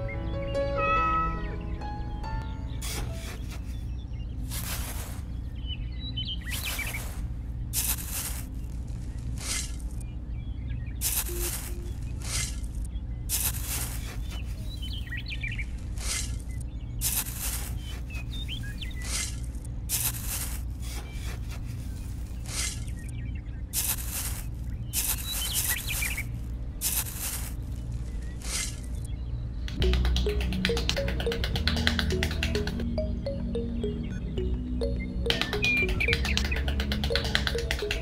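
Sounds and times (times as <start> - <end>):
faint bird chirps: 0.0 - 20.1, 20.8 - 29.7.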